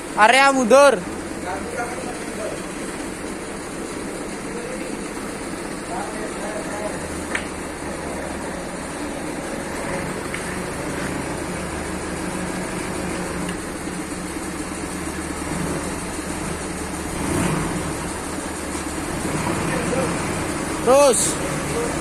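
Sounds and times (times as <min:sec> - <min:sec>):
forklift engine running: 0:00.0 - 0:22.0.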